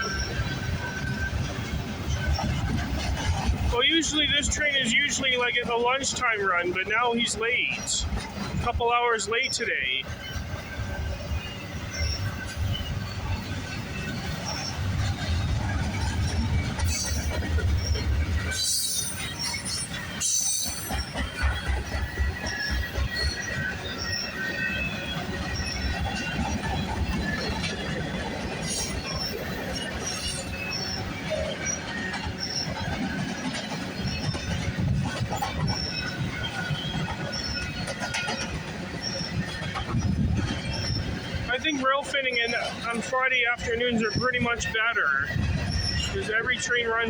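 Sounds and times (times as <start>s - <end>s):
high-pitched wheel squeaks: 0.0s - 5.8s, 9.4s - 46.7s
train wheels rumbling on rails: 0.0s - 47.0s.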